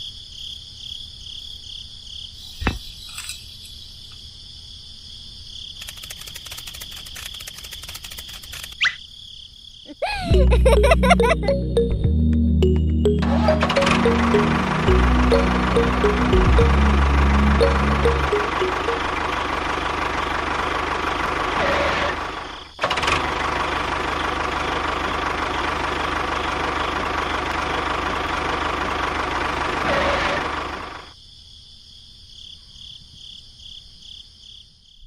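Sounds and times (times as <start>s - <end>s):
small engine running: 5.8s - 8.8s, 13.6s - 31.1s
faint pulsing tone: 12.6s - 19.7s.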